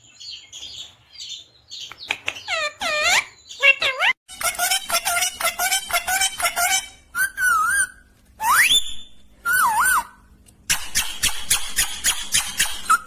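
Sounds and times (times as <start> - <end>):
parrot harsh chatter: 2.5 - 7.0
parrot whistling: 6.6 - 10.2.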